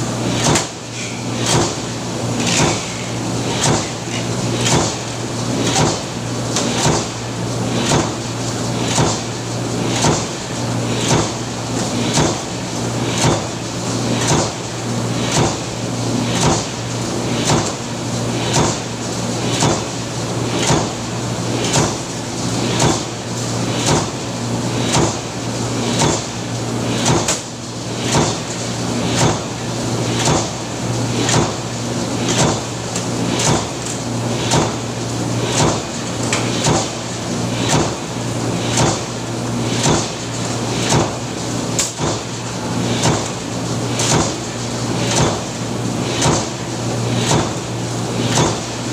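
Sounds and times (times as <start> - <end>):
press machine clacking: 0.4 - 5.0.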